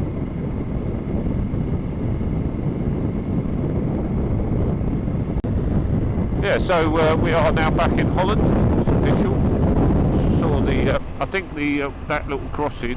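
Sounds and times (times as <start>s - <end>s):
wind noise on microphone: 0.0s - 12.9s
road noise: 5.4s - 12.9s.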